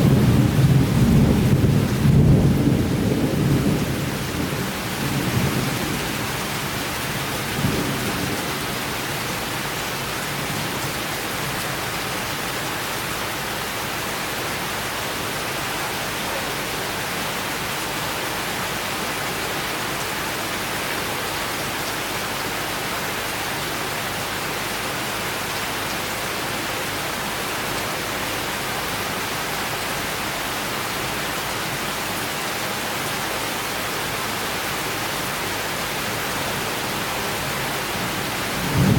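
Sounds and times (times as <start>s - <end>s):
low rumble of thunder: 0.0s - 9.6s, 37.8s - 38.9s
steady rain hiss: 0.0s - 38.9s.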